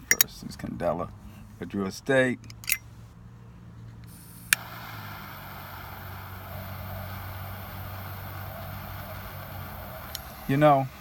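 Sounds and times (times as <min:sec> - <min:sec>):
car low hum: 0:00.0 - 0:11.0
lighter flame hissing: 0:04.1 - 0:11.0
torch lighter click: 0:04.1 - 0:11.0.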